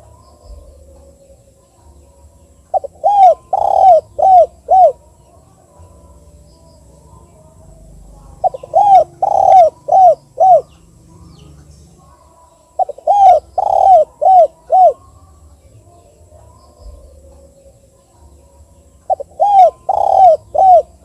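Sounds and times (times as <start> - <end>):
dove cooing: 0.0 - 6.4, 7.1 - 15.2, 19.0 - 21.0.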